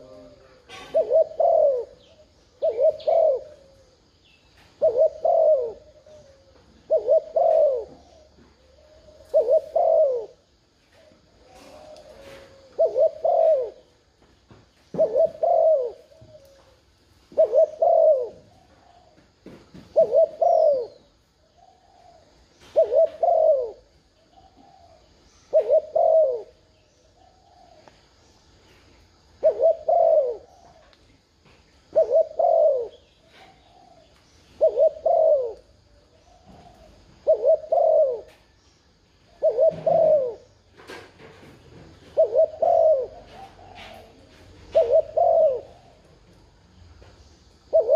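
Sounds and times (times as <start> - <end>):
dove cooing: 0.0 - 14.2, 14.9 - 28.1, 29.2 - 46.6, 47.6 - 47.9.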